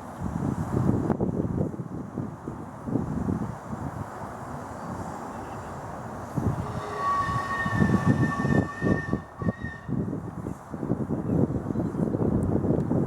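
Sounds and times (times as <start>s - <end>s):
steam locomotive whistle: 5.3s - 10.2s.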